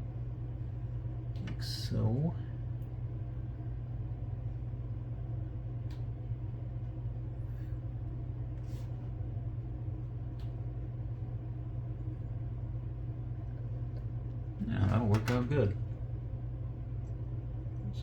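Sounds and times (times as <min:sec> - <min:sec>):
low background hum: 0:00.0 - 0:18.0
faint light clicks: 0:05.8 - 0:06.1.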